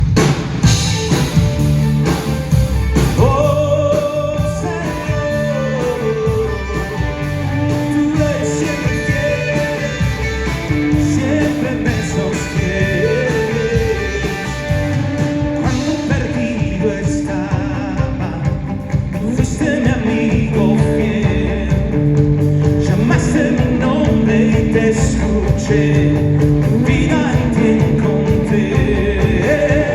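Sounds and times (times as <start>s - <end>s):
worship band playing: 0.0s - 29.9s
gliding lead melody: 0.7s - 15.9s.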